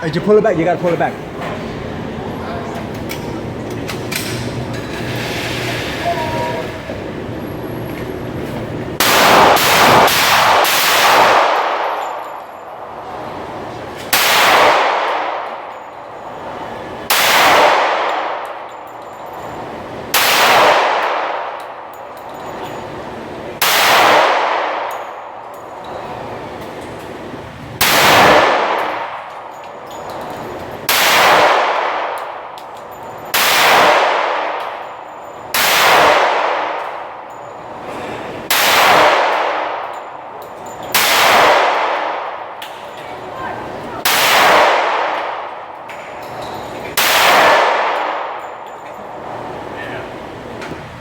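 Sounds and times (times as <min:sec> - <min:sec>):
gunshots with ringing echo: 0:09.0 - 0:19.0, 0:19.6 - 0:22.0, 0:22.9 - 0:25.5, 0:27.8 - 0:30.1, 0:30.8 - 0:32.6, 0:33.2 - 0:40.3, 0:40.9 - 0:42.6, 0:44.0 - 0:45.8, 0:47.0 - 0:49.6.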